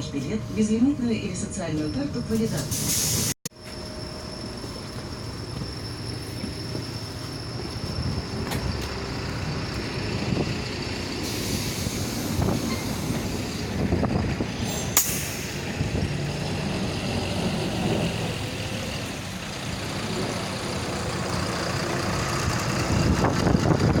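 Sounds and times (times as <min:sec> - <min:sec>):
bus engine and road rumble: 0:00.0 - 0:24.0
hiss: 0:11.2 - 0:13.7, 0:14.6 - 0:15.7.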